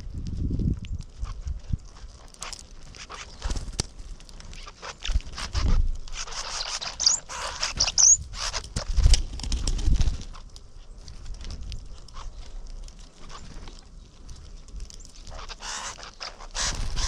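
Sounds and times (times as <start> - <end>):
small clicks and scratches: 0.2 - 17.0
bird chirps: 4.6 - 8.2, 14.9 - 17.0.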